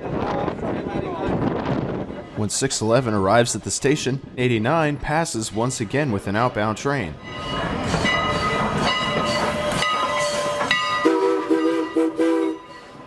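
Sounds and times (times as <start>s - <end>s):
train rolling and clattering: 5.4s - 13.0s
steam locomotive chime whistle: 7.2s - 13.0s.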